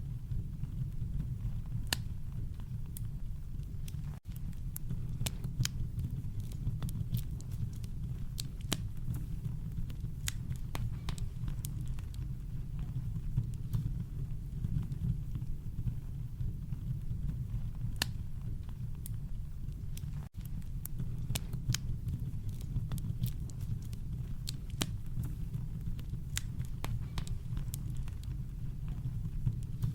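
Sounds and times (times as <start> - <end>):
campfire crackling and popping: 0.0 - 29.9.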